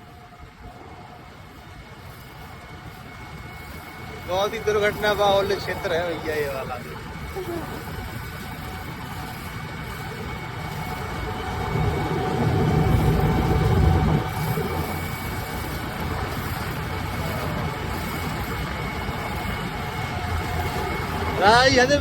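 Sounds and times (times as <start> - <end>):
combine harvester engine running: 0.0 - 22.0
loud low rumble: 10.5 - 22.0.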